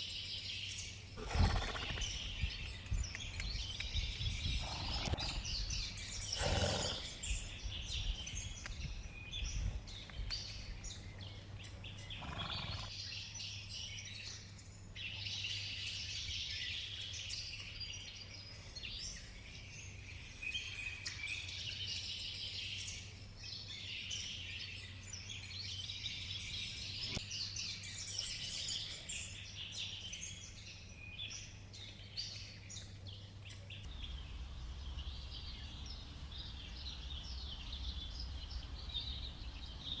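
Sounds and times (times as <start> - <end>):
birds chirping and trilling: 0.6 - 13.9, 14.5 - 40.0
steady low hum: 33.9 - 40.0.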